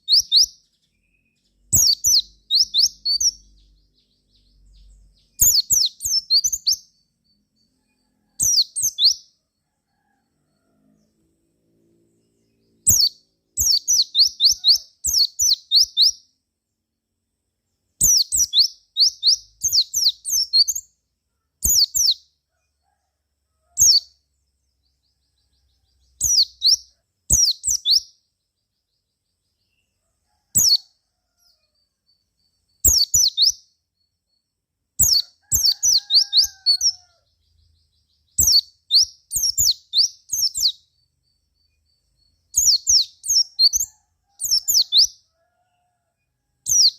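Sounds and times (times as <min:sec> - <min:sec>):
bird singing high chirps: 0:00.0 - 0:09.3, 0:12.2 - 0:16.3, 0:18.0 - 0:21.0, 0:21.6 - 0:22.3, 0:23.8 - 0:24.2, 0:24.8 - 0:29.9, 0:30.6 - 0:45.2, 0:46.7 - 0:46.9.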